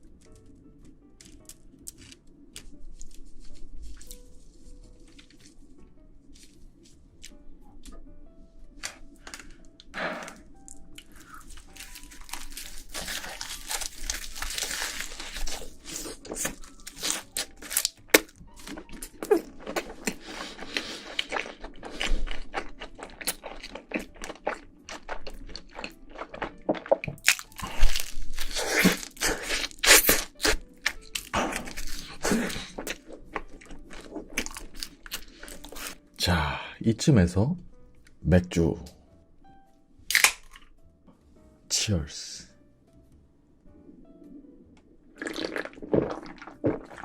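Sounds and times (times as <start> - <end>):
chewing and crunching food: 0.0 - 8.0, 8.8 - 36.0, 40.1 - 40.8, 45.1 - 47.0
wet mouth sounds: 19.1 - 30.6, 45.2 - 47.0.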